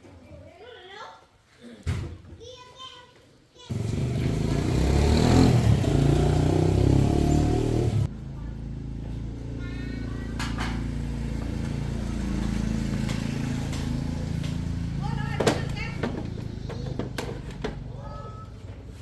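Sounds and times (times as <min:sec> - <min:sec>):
vehicle engine running: 0:03.7 - 0:18.2.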